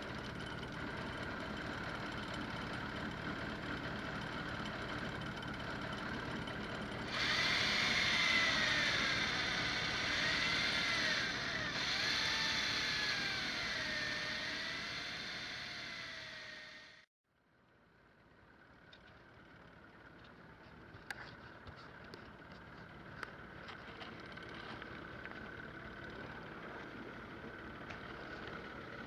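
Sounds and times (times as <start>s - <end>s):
motor humming: 0.0s - 17.1s
whine rising and falling in pitch: 7.1s - 17.1s.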